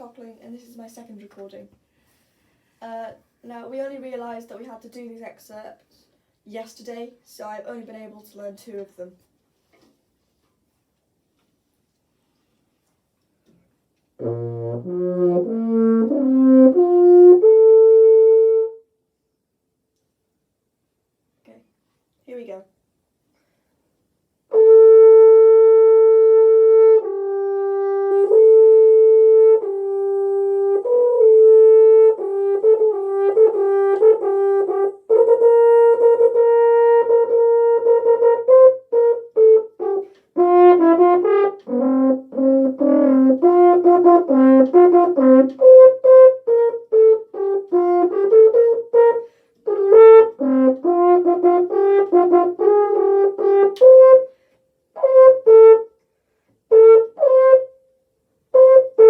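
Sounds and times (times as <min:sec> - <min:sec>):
solo french horn: 0:14.2 - 0:18.9, 0:24.5 - 0:55.9, 0:56.7 - 0:57.8, 0:58.5 - 0:59.0.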